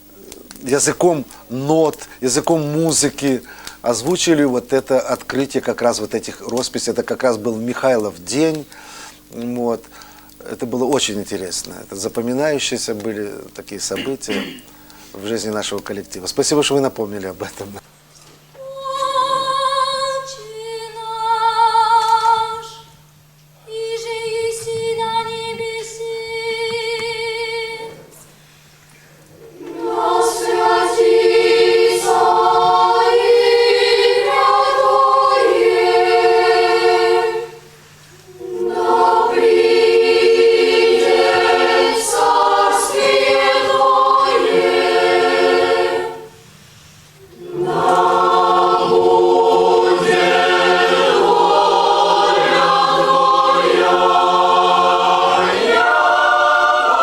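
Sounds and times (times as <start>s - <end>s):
choir singing sustained chords: 18.6s - 23.0s, 29.3s - 57.0s.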